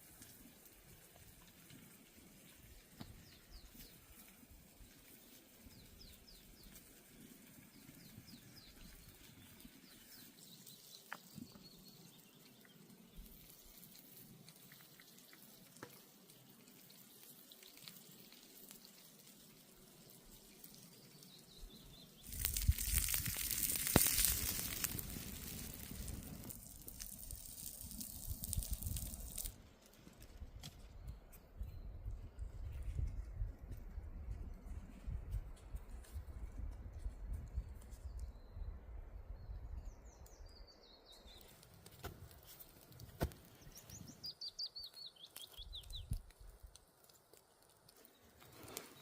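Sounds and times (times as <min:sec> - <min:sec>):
loud steady hiss: 0:22.2 - 0:29.6.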